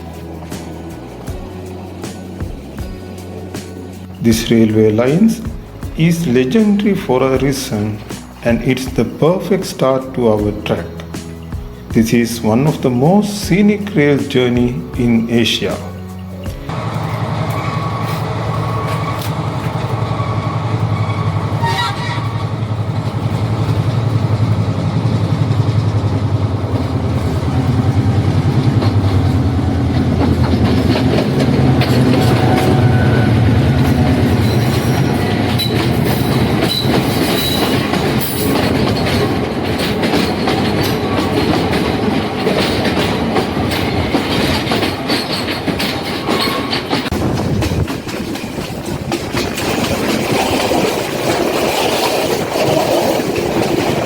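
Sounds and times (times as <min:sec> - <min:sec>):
low diesel engine drone: 0:00.0 - 0:08.6, 0:16.0 - 0:41.2
train wheels clacking over rail joints: 0:00.0 - 0:54.0.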